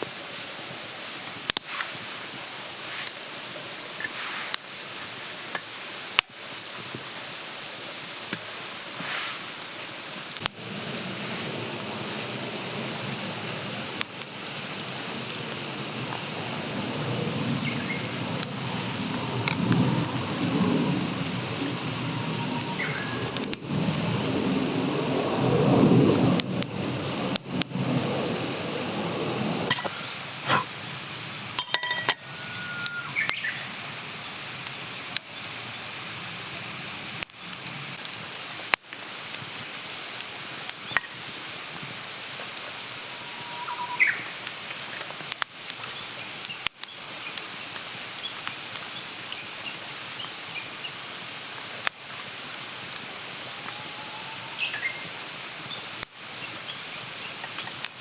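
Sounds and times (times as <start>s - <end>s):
campfire crackling: 0.0s - 58.0s
squeaky whistles from fire: 17.6s - 30.7s, 31.6s - 33.8s, 43.0s - 45.0s, 53.1s - 55.9s.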